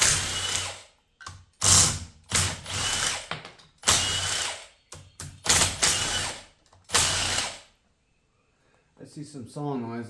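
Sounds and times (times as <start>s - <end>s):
power ratchet running: 0.0s - 0.8s, 1.6s - 4.6s, 5.5s - 7.6s.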